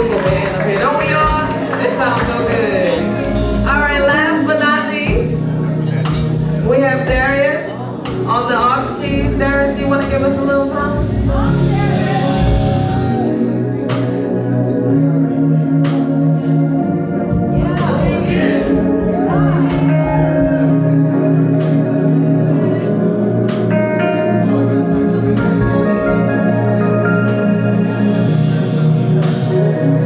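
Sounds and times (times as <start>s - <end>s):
drum and cymbal hits: 0.0s - 4.5s, 5.1s - 14.7s
live band playing: 0.0s - 30.0s.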